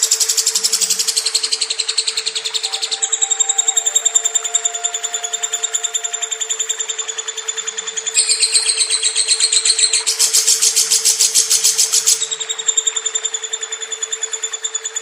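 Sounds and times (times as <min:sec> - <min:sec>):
lovebird chirping trill: 0:00.0 - 0:13.5.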